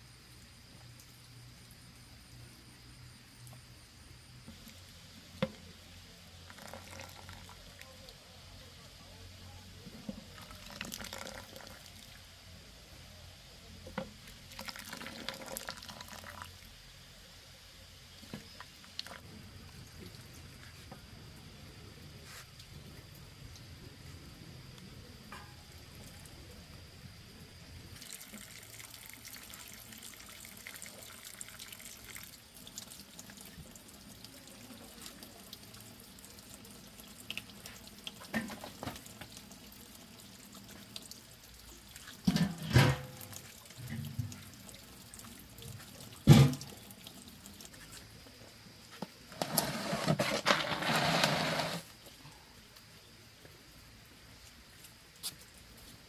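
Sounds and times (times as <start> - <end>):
water pouring and splashing: 4.4 - 8.0, 9.9 - 12.3, 14.0 - 16.8, 18.1 - 23.7, 27.9 - 52.1.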